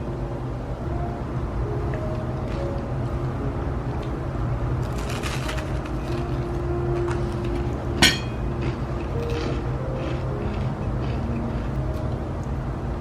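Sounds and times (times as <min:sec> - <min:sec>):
steady low hum: 0:00.0 - 0:13.0
light clattering: 0:08.0 - 0:08.4
dishware clinking: 0:08.0 - 0:08.5.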